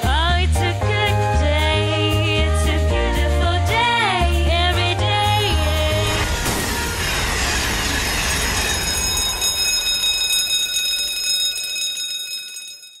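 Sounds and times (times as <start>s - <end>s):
train rushing past: 5.5s - 10.9s
level crossing bell ringing: 7.3s - 13.0s.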